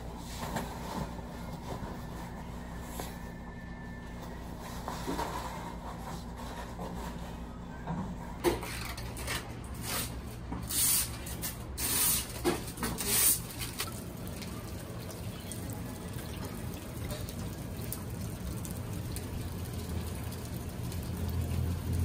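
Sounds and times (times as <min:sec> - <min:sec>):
rustling and brushing: 0:09.2 - 0:13.9
rain falling into puddle: 0:13.4 - 0:22.0.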